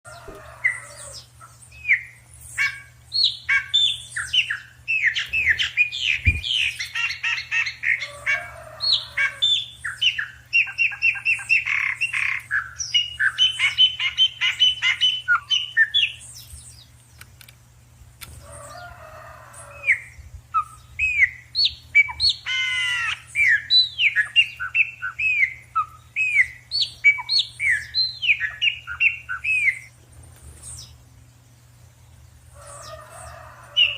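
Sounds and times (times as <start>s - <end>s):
birds chirping and squawking: 0.1s - 17.2s, 18.2s - 33.9s.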